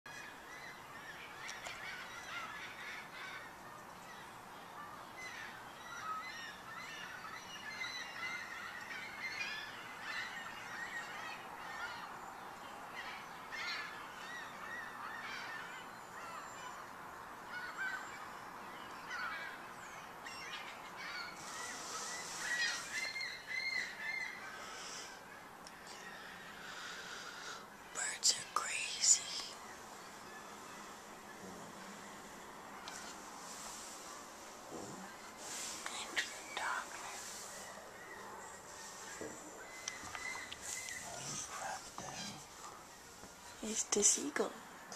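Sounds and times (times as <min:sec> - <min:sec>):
gulls squawking: 0:20.2 - 0:28.1, 0:29.6 - 0:43.0.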